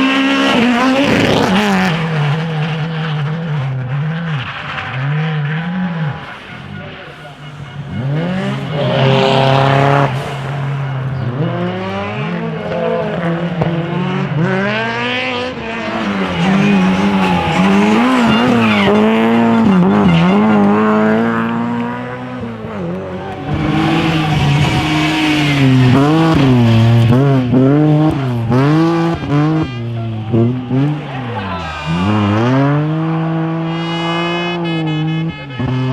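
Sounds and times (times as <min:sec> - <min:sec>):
car engine revving: 0:00.0 - 0:35.9
tyre squeal: 0:05.6 - 0:21.1, 0:23.2 - 0:32.9.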